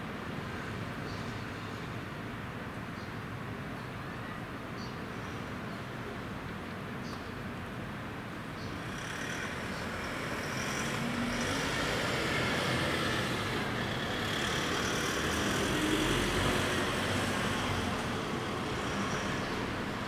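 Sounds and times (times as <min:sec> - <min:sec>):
vehicle passing: 0:08.7 - 0:20.0.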